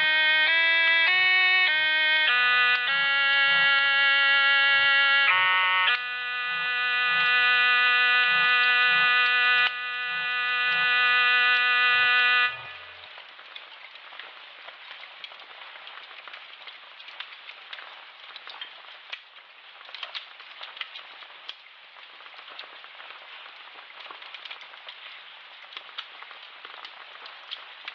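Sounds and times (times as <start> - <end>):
crackling hiss with pops: 12.8 - 27.9.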